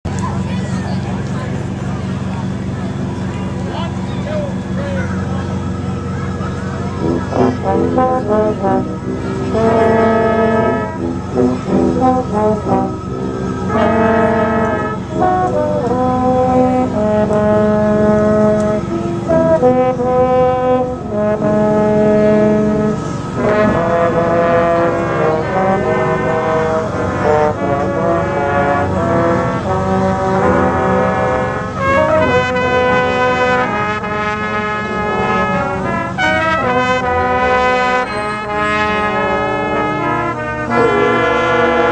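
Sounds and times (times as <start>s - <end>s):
brass instruments: 1.5s - 41.9s
concert band playing: 2.2s - 41.9s.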